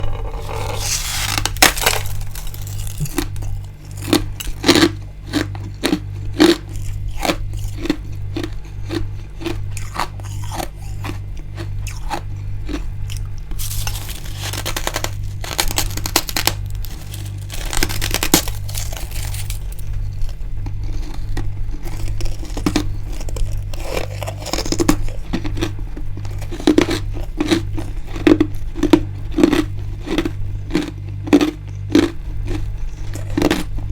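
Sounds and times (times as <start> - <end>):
frost crunching when chewed: 0.0 - 33.9.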